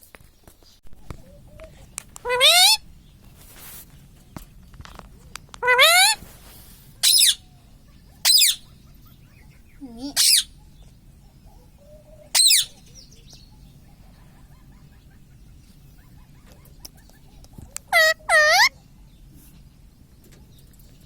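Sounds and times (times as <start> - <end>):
parakeet screeching calls: 2.2 - 2.8, 5.6 - 6.2, 7.0 - 7.5, 8.2 - 8.8, 10.2 - 10.5, 12.3 - 12.8, 17.9 - 18.7.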